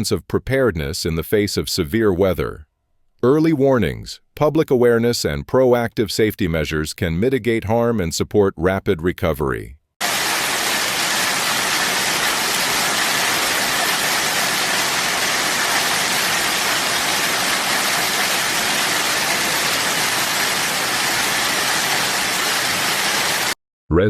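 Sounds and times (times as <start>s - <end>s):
heavy rain pouring: 10.0s - 23.6s.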